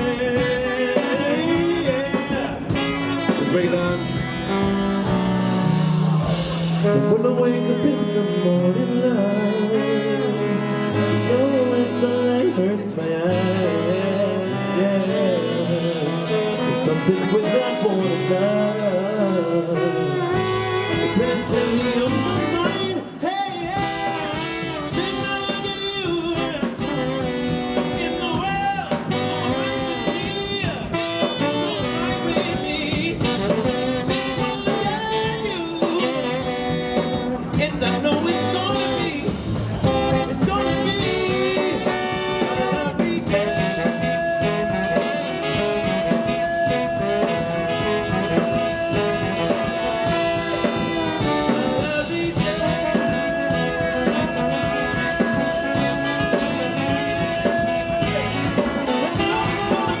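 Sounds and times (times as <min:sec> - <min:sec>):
long held horn notes: 0:00.0 - 0:12.6, 0:23.8 - 0:28.4, 0:29.1 - 0:37.6, 0:38.4 - 1:00.0
brass band playing: 0:00.0 - 1:00.0.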